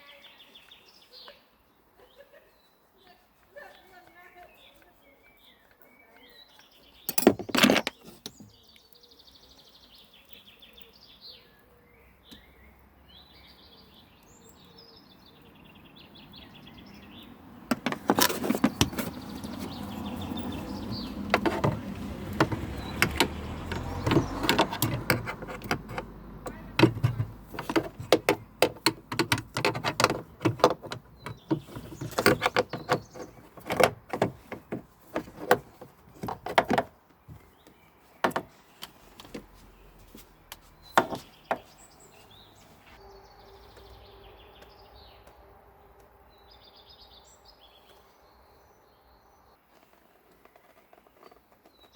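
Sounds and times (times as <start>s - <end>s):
birds chirping: 0.0s - 51.9s
fast uneven clicks and knocks: 20.8s - 36.9s.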